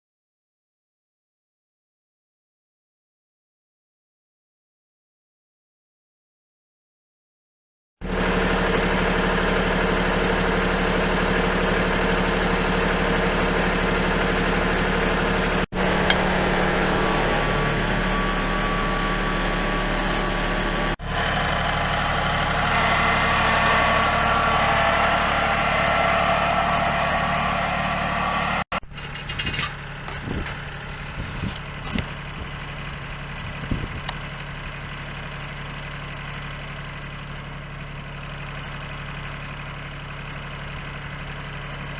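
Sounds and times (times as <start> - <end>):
tractor diesel engine running: 8.0 - 41.9.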